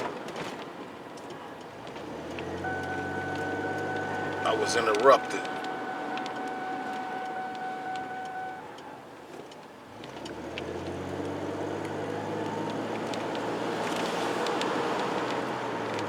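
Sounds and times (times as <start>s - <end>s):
car engine starting and running: 0.8s - 16.0s
steady electronic tone: 2.6s - 8.7s.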